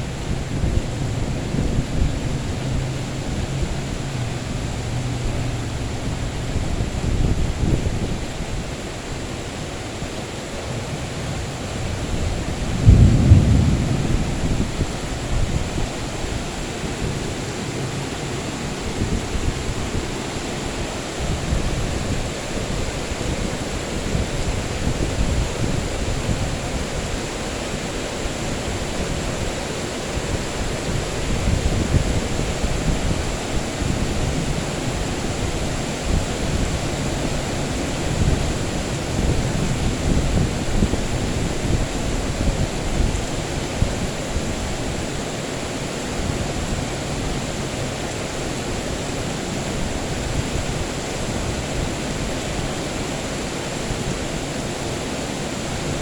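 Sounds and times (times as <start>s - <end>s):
heavy rain hiss: 0.0s - 56.0s
distant thunder rumbling: 11.7s - 17.8s.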